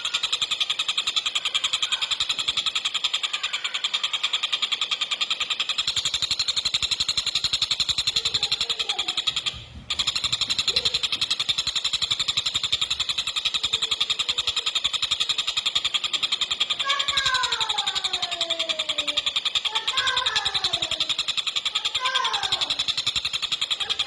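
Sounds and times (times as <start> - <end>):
kingfisher rattling trill: 0.0 - 24.0.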